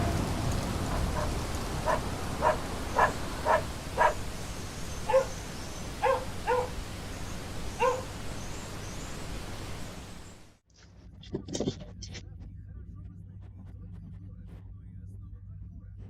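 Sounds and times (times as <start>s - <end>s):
dog barking: 0.8s - 4.3s, 4.9s - 6.8s, 7.7s - 8.2s.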